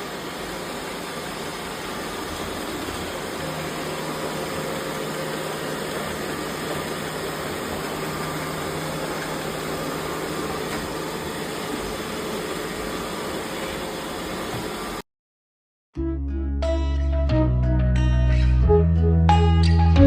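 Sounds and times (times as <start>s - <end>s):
robot vacuum cleaners running: 0.0s - 15.0s.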